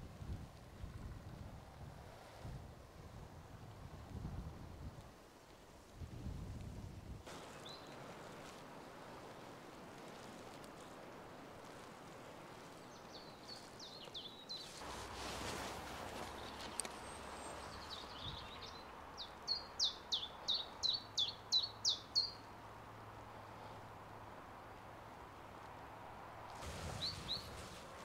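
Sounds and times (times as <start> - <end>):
songbird singing: 7.3 - 8.6, 12.6 - 22.6, 26.9 - 27.6.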